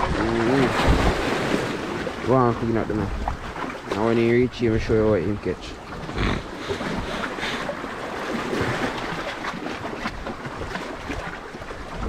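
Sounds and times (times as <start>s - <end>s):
wind blowing on microphone: 0.0s - 3.6s
sea waves washing: 0.0s - 12.0s.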